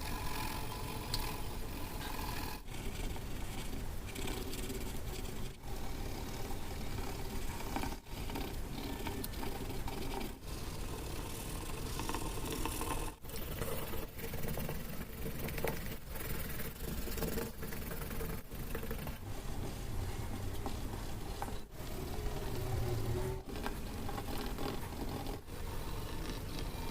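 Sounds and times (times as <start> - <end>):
paper rubbing and scraping: 15.6 - 26.9.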